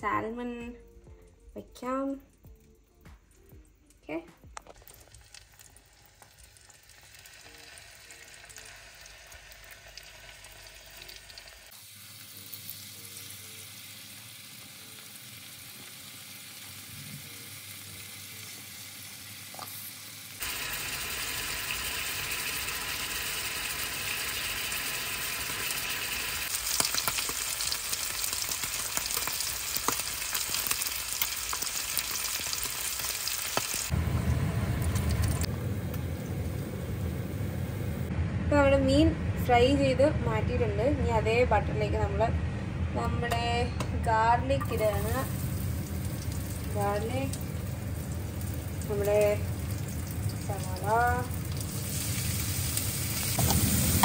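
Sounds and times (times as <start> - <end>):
fish sizzling in a frying pan: 4.6 - 34.0, 44.7 - 54.0.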